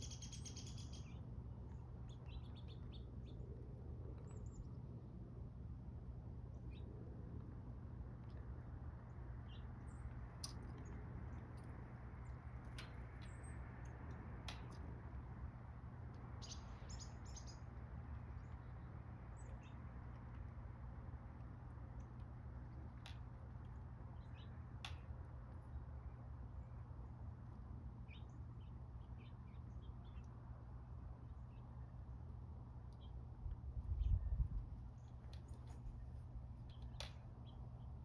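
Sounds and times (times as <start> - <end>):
small birds chirping: 0.0 - 4.8, 9.4 - 15.1, 16.1 - 20.5, 22.8 - 26.9, 32.8 - 38.0
steady low rumble: 0.0 - 38.0.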